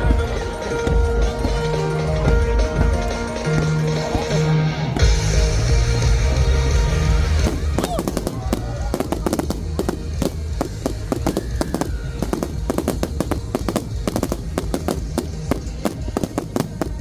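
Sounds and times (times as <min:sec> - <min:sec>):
fireworks bangs and crackles: 0:06.6 - 0:17.0.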